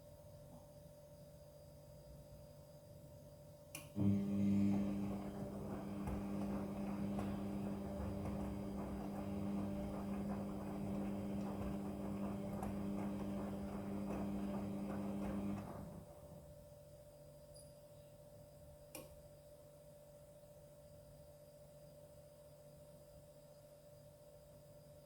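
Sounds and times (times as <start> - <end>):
washing machine motor hum: 3.9 - 16.8
crackling wash noise: 4.0 - 16.4.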